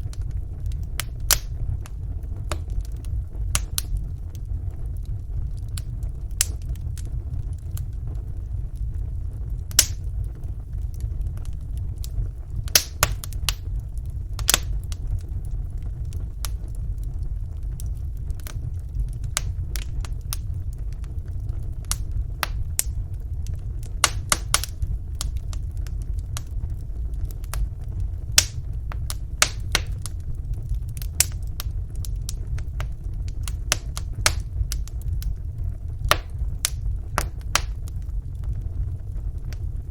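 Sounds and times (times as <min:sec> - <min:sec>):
fire crackles and pops: 0:00.0 - 0:39.9
fire low rumble: 0:00.0 - 0:39.9.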